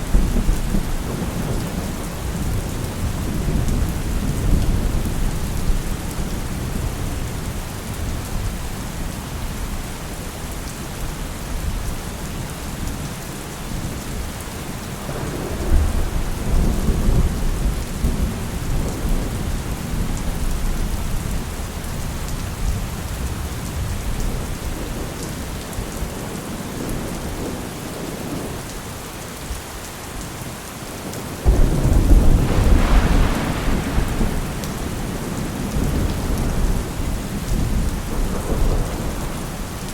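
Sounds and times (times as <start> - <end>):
thunder rumbling: 0.0 - 8.4, 15.0 - 25.2, 31.4 - 39.9
steady rain: 0.0 - 39.9
thunder crack: 15.1 - 19.1, 31.4 - 39.5.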